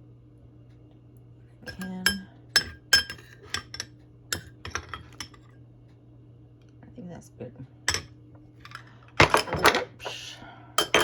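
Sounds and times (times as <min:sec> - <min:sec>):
metal spoon clinking against dish: 0:01.7 - 0:05.4, 0:07.9 - 0:08.1, 0:10.8 - 0:11.0.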